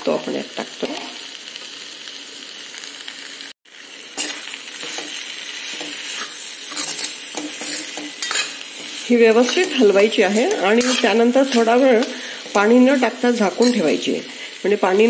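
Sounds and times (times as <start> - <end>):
food sizzling in a pan: 0.0 - 15.0
steel spoon scraping a pan: 4.1 - 14.4.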